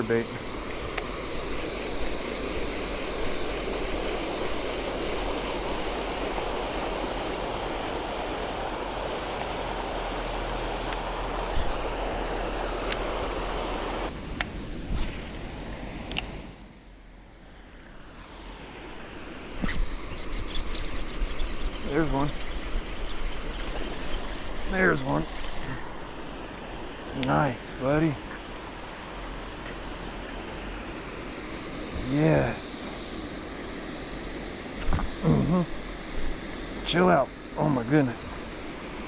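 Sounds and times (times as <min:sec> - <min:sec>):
waterfall rushing: 0:00.0 - 0:14.1, 0:23.9 - 0:39.0.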